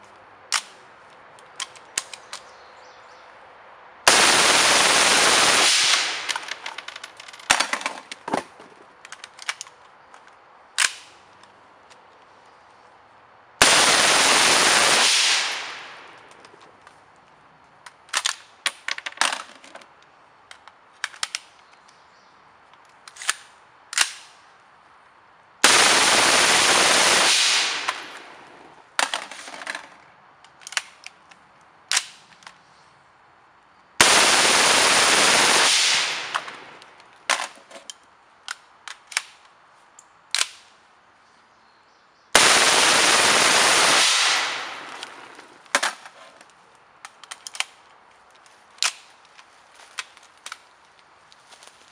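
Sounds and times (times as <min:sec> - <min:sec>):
suppressed rifle firing bursts: 0:04.1 - 0:06.7, 0:13.6 - 0:16.0, 0:25.6 - 0:28.3, 0:34.0 - 0:36.8, 0:42.4 - 0:45.4.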